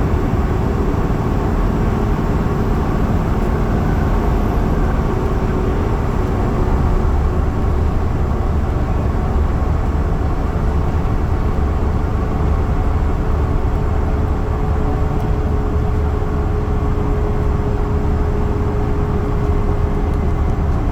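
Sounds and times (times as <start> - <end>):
constant whine: 0.0 - 8.3
bus drive and road rumble: 0.0 - 20.9.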